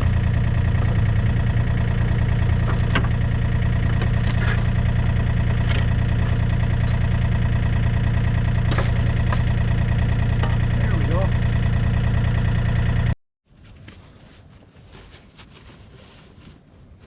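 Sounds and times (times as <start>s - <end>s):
engine idling: 0.0s - 13.2s.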